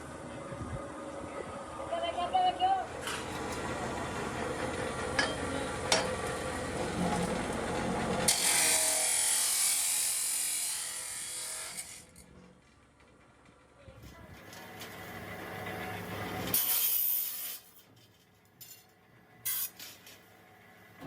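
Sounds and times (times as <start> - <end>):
power tool running: 3.0 - 12.4.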